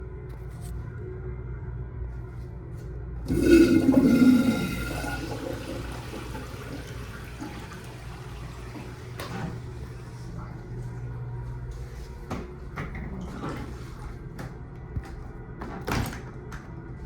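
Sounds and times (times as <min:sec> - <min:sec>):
toilet refill noise: 0:03.2 - 0:10.1, 0:13.0 - 0:14.2
toilet flush water rush: 0:03.3 - 0:09.9.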